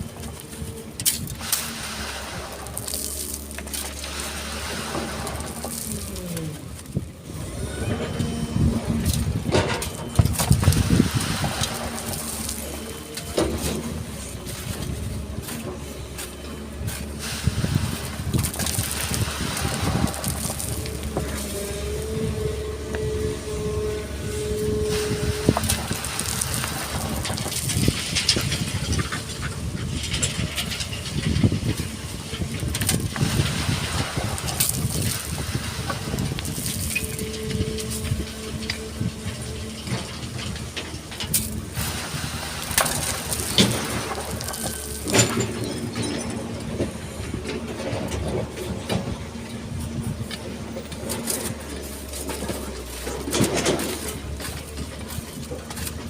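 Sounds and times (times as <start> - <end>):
bucket clunking through sand and stone: 0.0 - 7.2, 7.9 - 22.9, 24.8 - 56.0
hydraulic whine: 0.0 - 29.1
excavator diesel engine running: 0.0 - 56.0.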